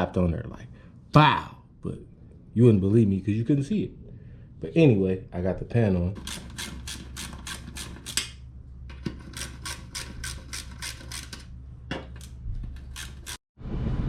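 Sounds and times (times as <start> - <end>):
ratchet wrench clicking: 6.2 - 8.3, 9.3 - 11.4, 12.9 - 13.4.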